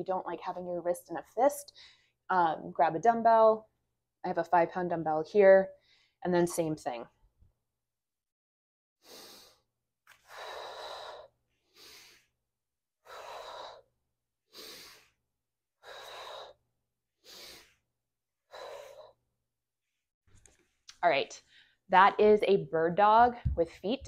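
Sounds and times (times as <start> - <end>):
woman breathing: 1.7 - 2.2, 9.0 - 12.4, 13.0 - 13.9, 14.5 - 15.2, 15.8 - 16.6, 17.2 - 17.8, 18.5 - 19.2, 21.4 - 21.9.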